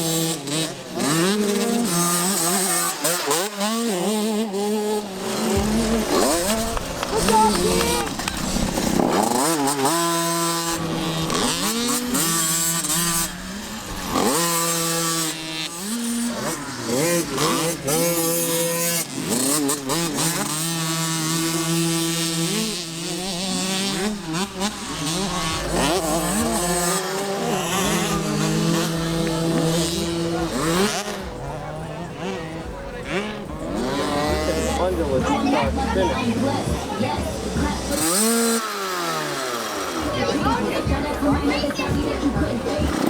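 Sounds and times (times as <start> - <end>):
motocross bike engine revving: 0.0 - 43.0.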